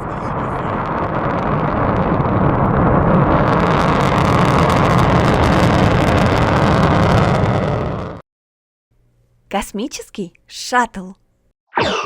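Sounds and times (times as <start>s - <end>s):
rocket engines firing: 0.1s - 8.2s.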